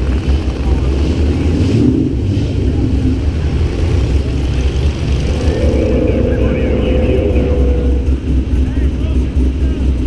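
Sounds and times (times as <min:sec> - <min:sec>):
car engines rumbling: 0:00.0 - 0:10.0
steady drone: 0:04.1 - 0:08.9.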